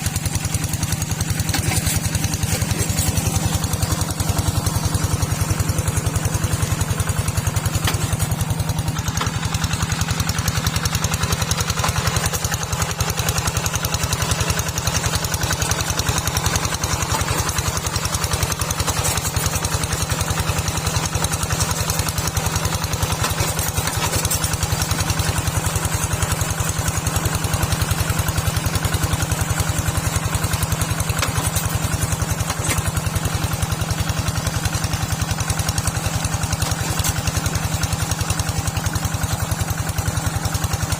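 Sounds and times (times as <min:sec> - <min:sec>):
small tractor engine running: 0:00.0 - 0:40.9.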